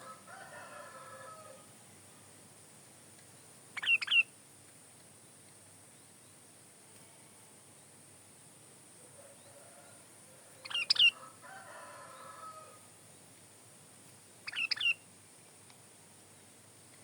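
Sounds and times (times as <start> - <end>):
bulbul singing: 3.4 - 4.3, 10.6 - 11.2, 14.4 - 15.1.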